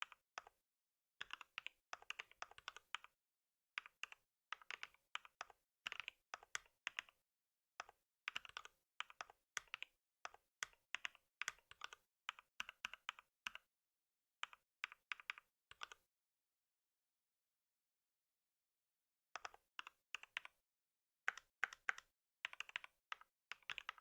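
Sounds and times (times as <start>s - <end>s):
typing on computer keyboard: 1.2s - 3.1s, 3.8s - 7.2s, 7.8s - 13.6s, 21.3s - 24.0s.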